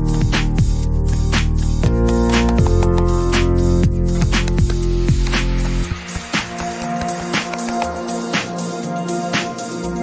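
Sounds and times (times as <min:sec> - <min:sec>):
sliding bass notes: 0:00.0 - 0:06.0
beat: 0:00.0 - 0:09.8
music with held chords: 0:00.0 - 0:10.0.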